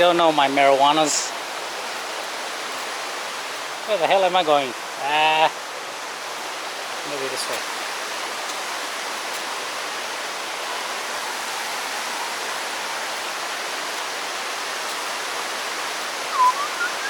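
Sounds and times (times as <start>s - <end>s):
waterfall rushing: 0.0s - 17.0s
brief chirp: 16.3s - 17.0s.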